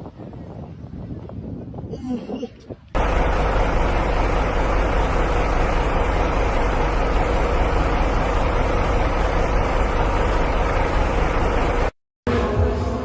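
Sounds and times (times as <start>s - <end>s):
vehicle engine and road noise: 3.0s - 12.0s.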